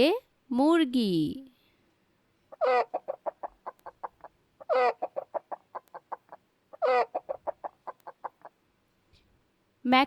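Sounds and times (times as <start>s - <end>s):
hen squawking and clucking: 2.5s - 8.6s.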